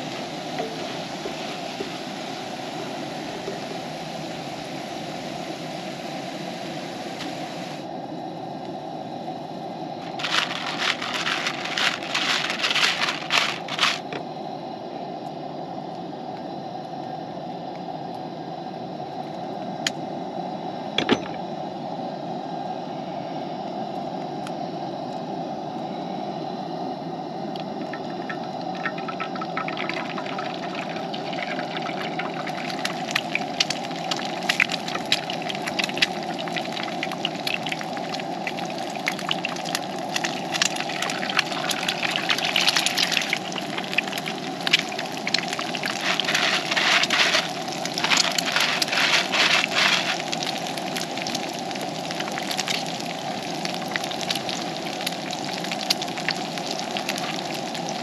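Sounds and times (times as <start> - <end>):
campfire flames rushing: 27.6 - 58.0
fire crackles and pops: 27.6 - 58.0.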